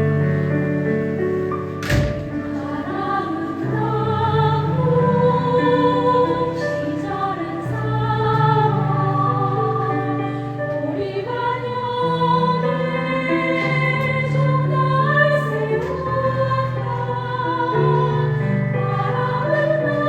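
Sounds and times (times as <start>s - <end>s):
piano accompaniment: 0.0s - 20.0s
choir singing held chords: 1.8s - 20.0s.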